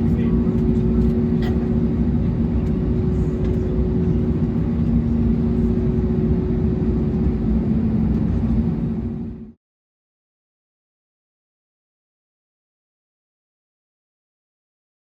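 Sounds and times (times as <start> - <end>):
airplane cabin rumble: 0.0 - 9.6.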